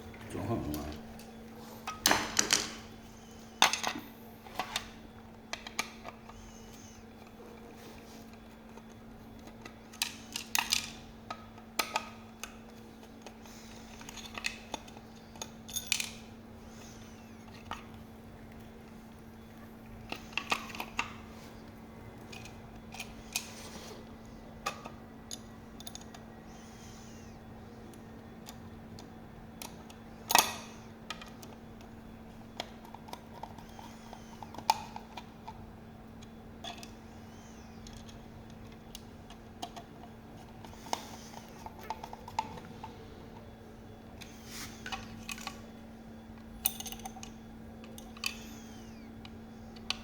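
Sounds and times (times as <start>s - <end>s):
steady low hum: 0.0s - 50.0s
tools and fasteners clinking: 14.0s - 16.3s, 46.6s - 48.5s.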